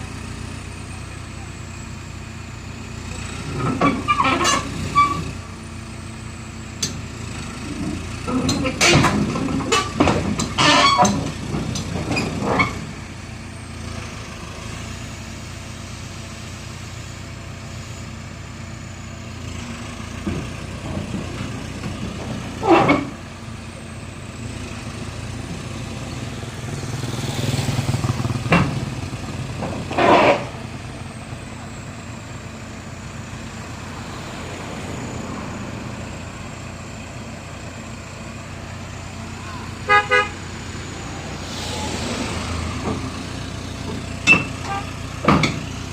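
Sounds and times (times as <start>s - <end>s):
heavy diesel engine running: 0.0s - 45.9s
short loud horn blasts: 39.8s - 40.4s.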